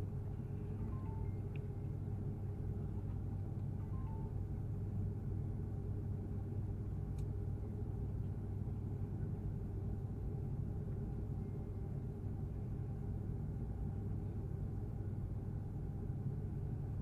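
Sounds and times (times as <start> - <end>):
aircraft cabin rumble: 0.0 - 17.0
faint click: 7.1 - 7.3.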